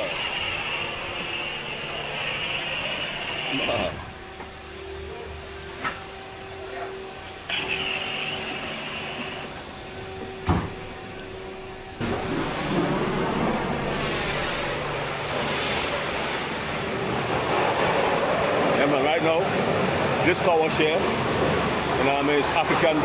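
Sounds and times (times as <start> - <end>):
pressure washer water jet hissing: 0.0 - 4.0, 7.5 - 9.6, 12.0 - 23.0
machine hum: 0.0 - 23.0.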